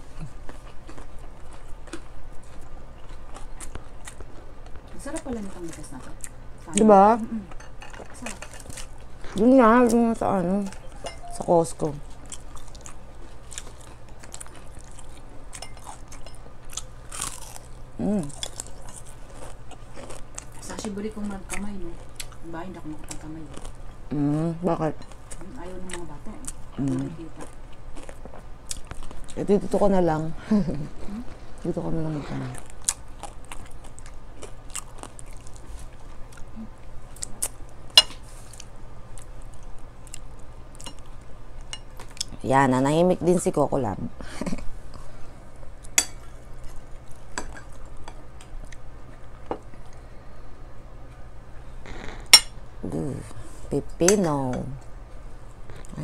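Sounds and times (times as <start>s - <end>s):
people chewing: 0.0s - 42.4s, 44.2s - 56.0s
steady low hum: 0.0s - 56.0s
plates and bowls clinking: 10.7s - 11.4s.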